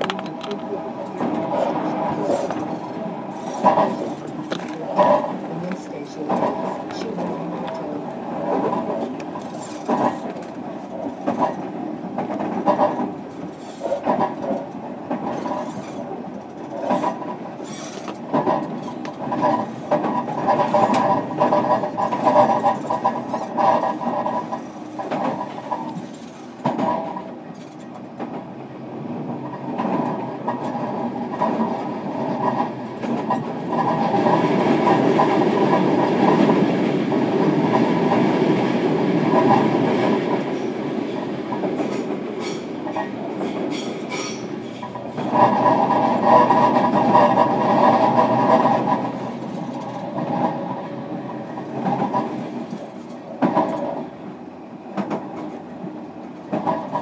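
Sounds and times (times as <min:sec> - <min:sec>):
wheels clicking over rail joints: 0:00.0 - 0:28.6, 0:29.2 - 0:54.2, 0:54.9 - 0:57.0
train rumble: 0:00.0 - 0:57.0.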